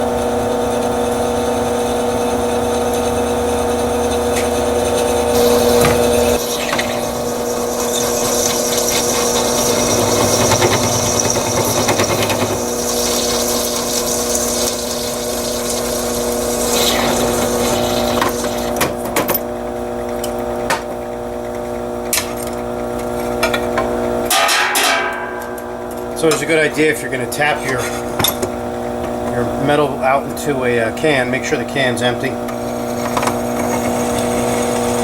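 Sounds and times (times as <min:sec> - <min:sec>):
step drill cutting metal: 0:00.0 - 0:19.1, 0:23.0 - 0:35.0
drill press motor hum: 0:00.0 - 0:24.4, 0:25.0 - 0:35.0.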